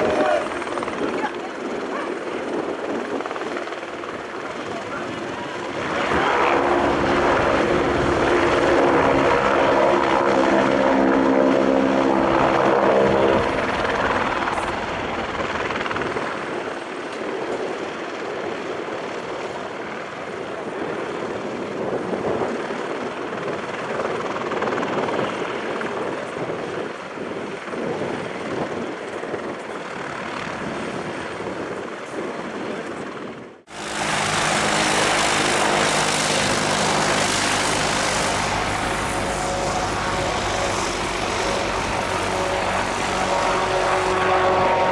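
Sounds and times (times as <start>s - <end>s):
helicopter turbine and rotor running: 0.0s - 44.9s
twin turboprop engine tones: 33.7s - 44.9s.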